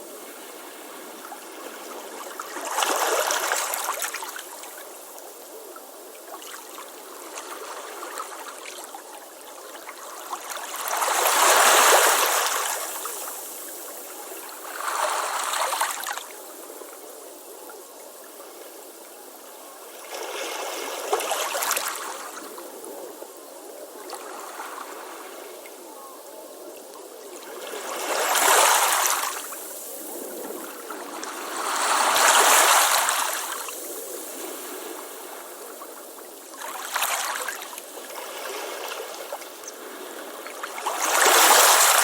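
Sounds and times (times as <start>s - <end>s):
ocean waves on a beach: 6.2s - 17.0s, 18.6s - 42.0s.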